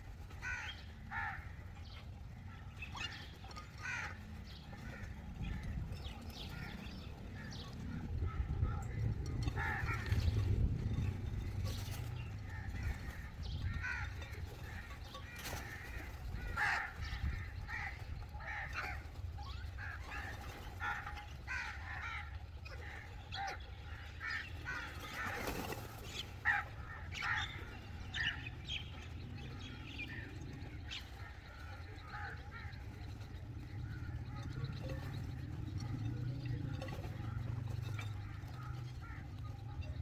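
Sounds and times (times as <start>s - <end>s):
crows cawing: 0.2s - 40.0s
steady low rumble: 0.7s - 15.0s, 26.3s - 40.0s.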